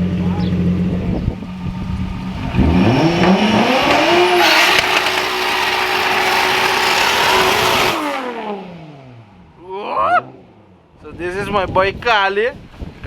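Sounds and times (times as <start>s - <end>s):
car engine revving: 0.8s - 9.6s.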